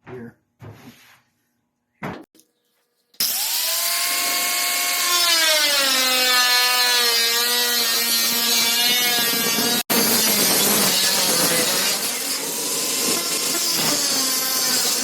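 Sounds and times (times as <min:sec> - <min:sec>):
power tool on sheet metal: 0:03.2 - 0:15.0.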